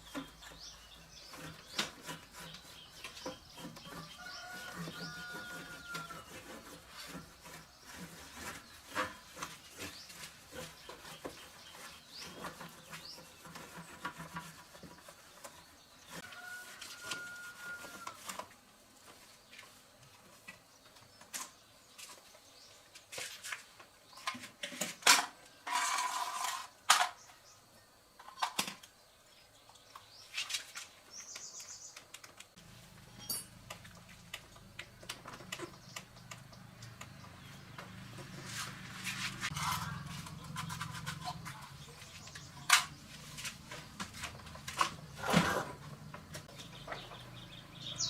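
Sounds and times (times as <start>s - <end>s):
rasping scrape: 0.0s - 18.4s, 25.6s - 26.8s, 37.4s - 47.3s.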